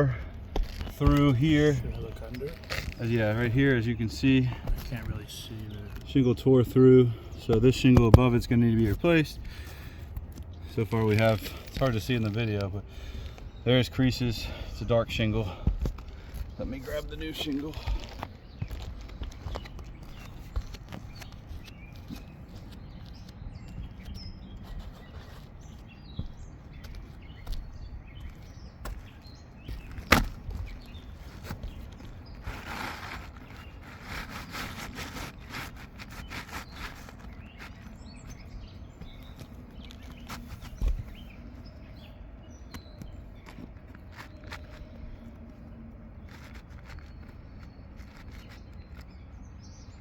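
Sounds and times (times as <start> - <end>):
rustling and scuffing: 14.1 - 49.4.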